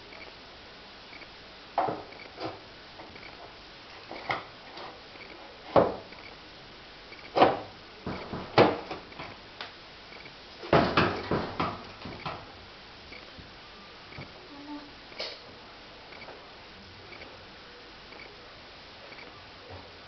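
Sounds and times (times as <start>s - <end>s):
sharp knocks and clunks: 5.7s - 6.2s, 7.2s - 9.4s, 10.6s - 12.5s.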